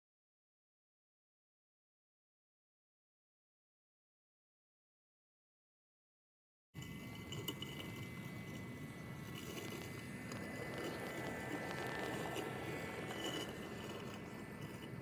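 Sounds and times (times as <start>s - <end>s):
robotic lawnmower whine: 6.8s - 15.0s.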